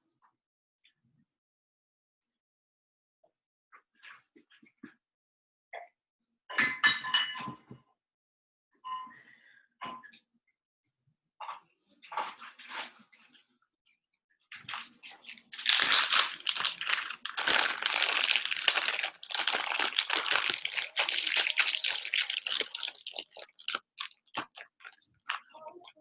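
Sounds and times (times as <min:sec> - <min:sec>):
crinkling handling noise: 0:14.6 - 0:25.7.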